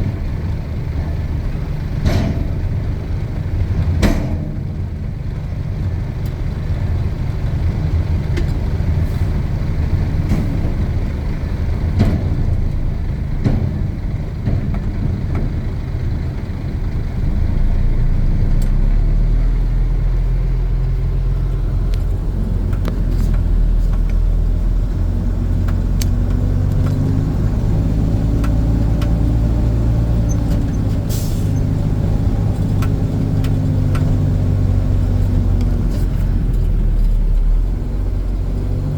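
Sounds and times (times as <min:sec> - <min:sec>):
diesel truck engine running: 0:00.0 - 0:38.9
sharp clicks and knocks: 0:03.8 - 0:04.6, 0:21.5 - 0:24.4, 0:25.6 - 0:27.3, 0:28.2 - 0:31.0, 0:31.6 - 0:37.2.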